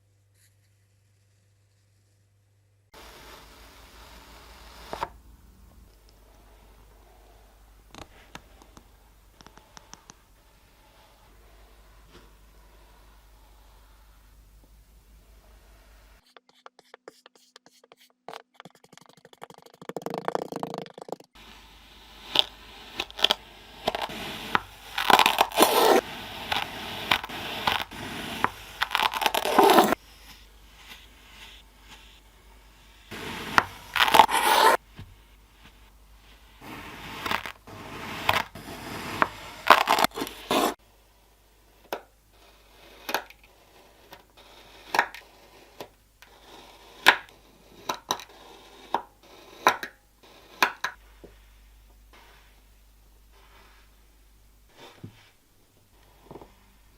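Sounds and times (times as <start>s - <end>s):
sand crushing and scraping by hand: 21.4s - 40.8s.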